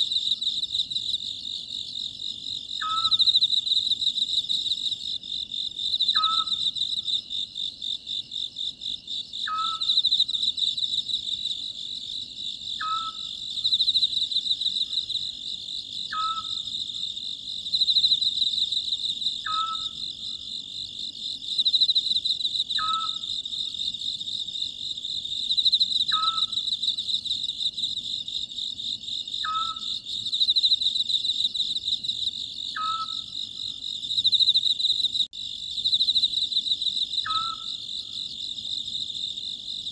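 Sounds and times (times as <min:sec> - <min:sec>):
insect chirring: 0:00.0 - 0:05.2, 0:09.0 - 0:28.2, 0:29.0 - 0:39.9
owl calling: 0:02.8 - 0:03.2, 0:06.2 - 0:06.6, 0:09.5 - 0:09.9, 0:12.8 - 0:13.3, 0:16.1 - 0:16.7, 0:19.4 - 0:20.0, 0:22.8 - 0:23.2, 0:26.1 - 0:26.5, 0:29.4 - 0:29.9, 0:32.8 - 0:33.2, 0:37.2 - 0:37.7.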